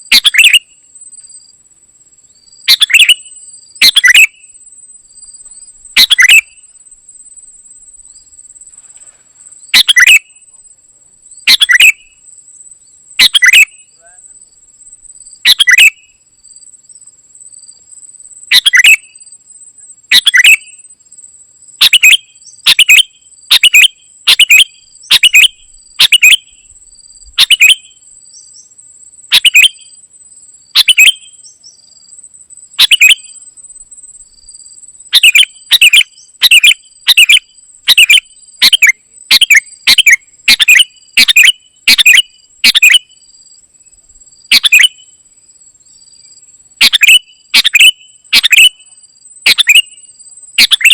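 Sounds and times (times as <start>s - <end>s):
bulbul chirping sharply: 2.7s - 4.4s, 6.0s - 6.7s, 9.7s - 10.4s, 11.5s - 12.2s, 21.8s - 26.5s, 27.4s - 27.9s, 35.1s - 43.1s, 44.5s - 45.1s, 46.8s - 48.9s, 50.6s - 50.9s.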